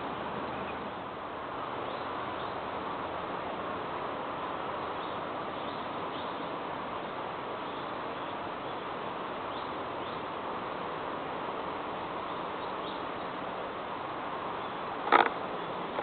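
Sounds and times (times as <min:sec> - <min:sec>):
background hiss: 0:00.0 - 0:16.0
birds chirping: 0:12.2 - 0:13.4, 0:14.5 - 0:16.0.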